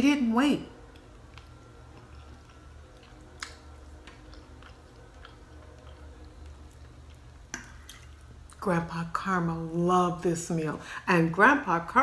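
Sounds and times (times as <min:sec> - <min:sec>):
steady low hum: 0:00.0 - 0:12.0
faint chewing: 0:00.8 - 0:08.6.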